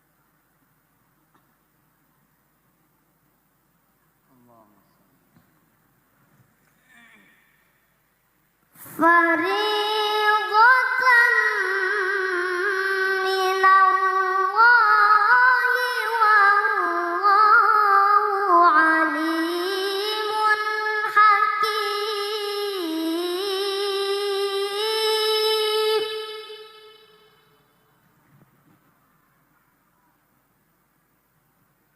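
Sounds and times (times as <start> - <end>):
child reciting melodically: 8.8 - 27.4.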